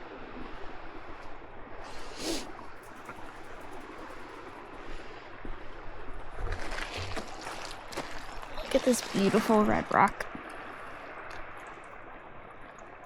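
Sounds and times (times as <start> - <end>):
small waves washing over rocks: 6.1 - 13.0.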